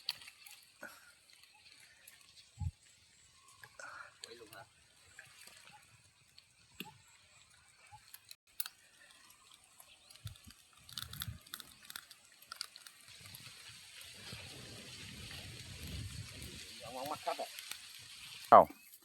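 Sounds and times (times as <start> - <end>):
campfire crackling: 8.5 - 19.0
fish sizzling on coals: 9.3 - 19.0.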